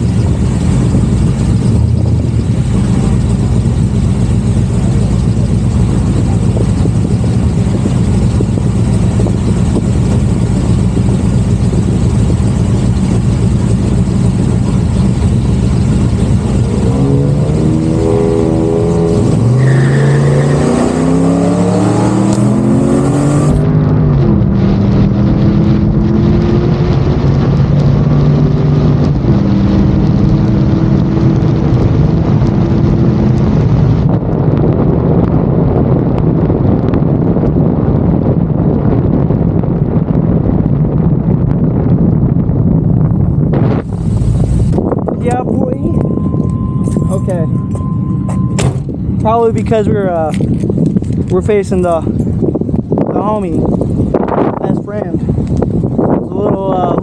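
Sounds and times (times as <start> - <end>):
car engine revving through gears: 14.0 - 34.2.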